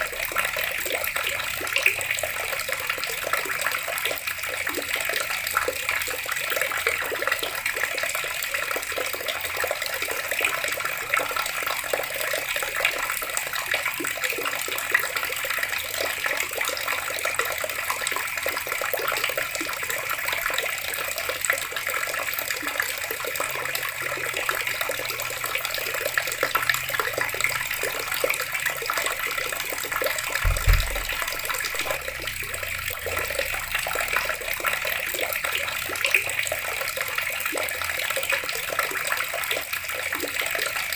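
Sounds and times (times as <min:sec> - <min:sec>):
water running from a tap: 0:00.0 - 0:40.9
brief low thump: 0:30.4 - 0:32.7.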